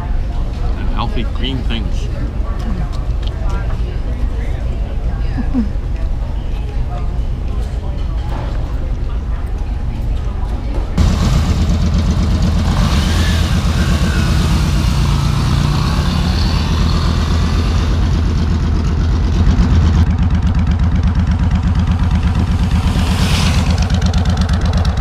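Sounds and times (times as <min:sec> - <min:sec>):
motorcycle engine running: 0:11.0 - 0:25.0
wind and road noise: 0:19.8 - 0:25.0.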